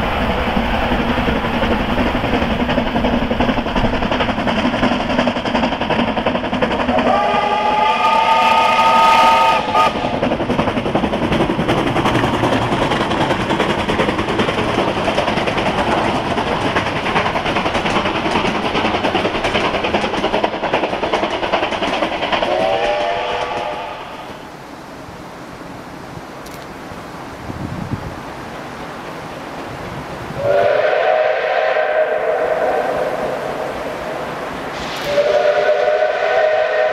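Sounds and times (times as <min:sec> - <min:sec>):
train rushing and clattering: 0:00.0 - 0:36.9
steam locomotive chime whistle: 0:07.0 - 0:10.0, 0:22.5 - 0:24.4, 0:30.4 - 0:33.7, 0:34.8 - 0:36.9.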